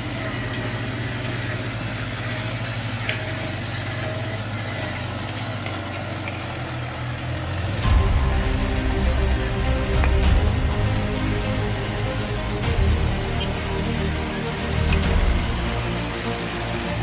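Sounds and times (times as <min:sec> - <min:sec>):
model truck motor humming: 0:00.0 - 0:17.0
music: 0:07.6 - 0:17.0.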